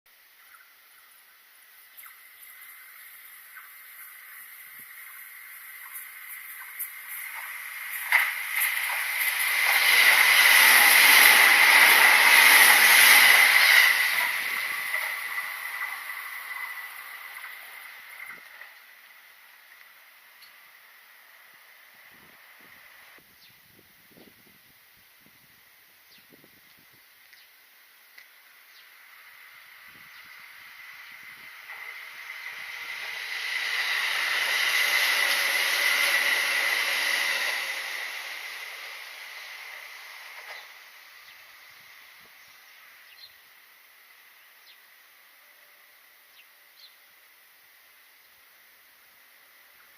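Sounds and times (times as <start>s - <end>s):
electric train passing with whine: 0.1s - 49.9s.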